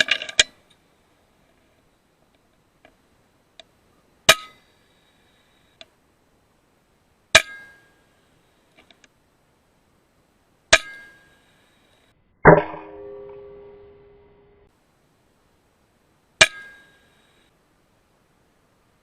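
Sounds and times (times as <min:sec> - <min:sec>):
loud metallic clang: 0:12.5 - 0:14.7.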